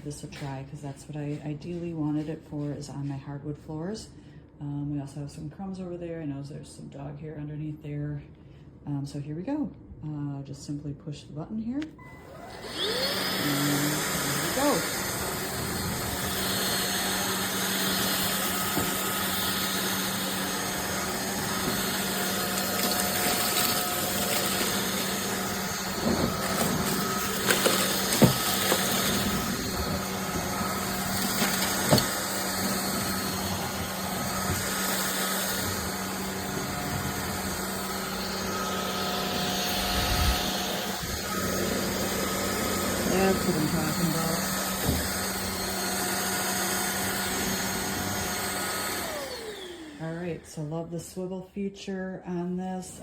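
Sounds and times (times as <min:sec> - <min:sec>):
stick vacuum running: 0:12.0 - 0:50.7.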